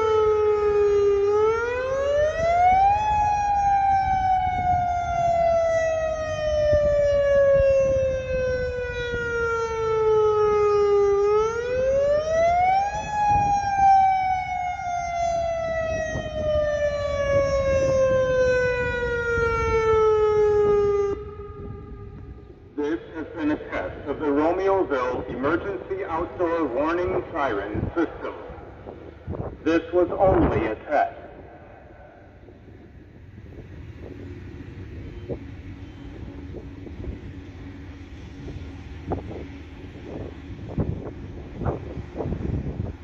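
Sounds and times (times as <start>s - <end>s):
electronic siren wailing: 0.0s - 22.6s.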